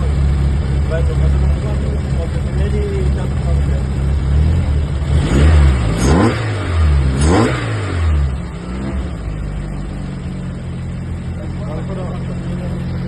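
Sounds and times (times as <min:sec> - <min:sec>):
car engine revving and idling: 0:00.0 - 0:13.0.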